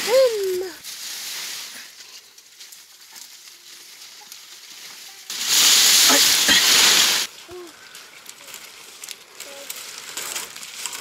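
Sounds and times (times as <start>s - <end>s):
food sizzling in hot oil: 5.3s - 7.3s.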